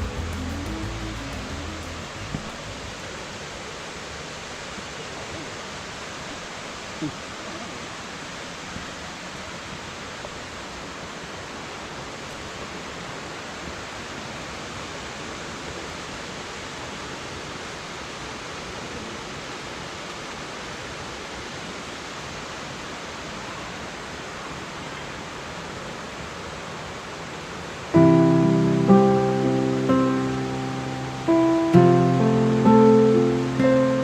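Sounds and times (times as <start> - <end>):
waterfall rushing: 0.0 - 6.9, 27.7 - 34.0.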